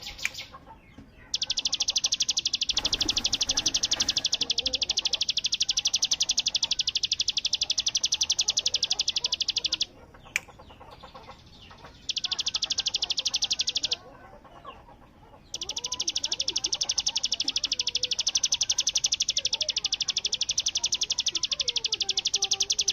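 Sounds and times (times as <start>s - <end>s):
bird rattling high trill: 1.3s - 9.9s.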